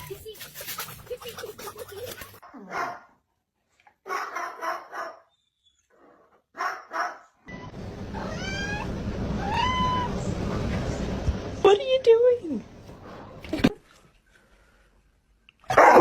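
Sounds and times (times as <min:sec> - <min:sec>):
dog barking: 0:02.4 - 0:03.2, 0:04.0 - 0:05.3, 0:06.5 - 0:07.4, 0:15.7 - 0:16.0
cat meowing: 0:08.1 - 0:10.2.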